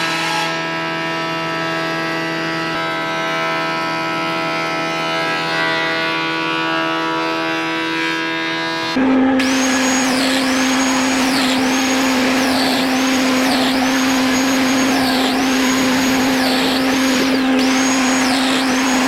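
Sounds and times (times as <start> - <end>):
woodworking power tool whining: 0.0 - 19.0.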